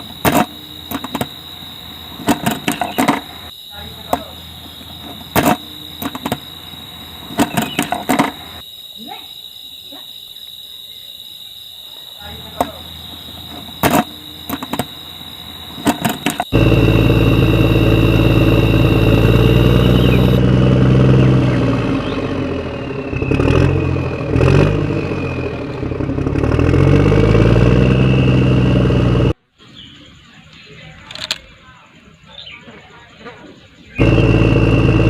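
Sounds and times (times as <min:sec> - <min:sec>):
engine revving: 0:12.5 - 0:29.4, 0:34.0 - 0:35.0
sharp clicks: 0:15.8 - 0:16.6.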